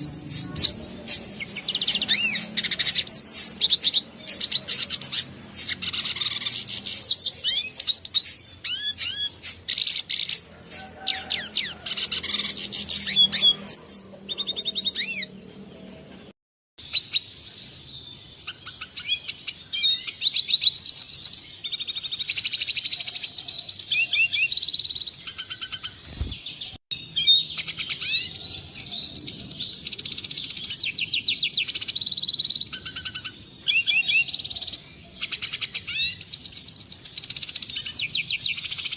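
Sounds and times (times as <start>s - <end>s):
bird twittering and trilling: 0.0s - 38.9s.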